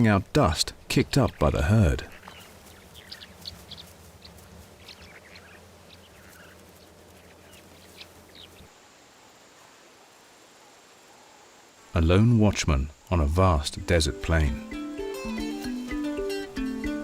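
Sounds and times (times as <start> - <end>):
low outdoor rumble: 0.0 - 8.7
faint bird chirps: 2.1 - 11.7.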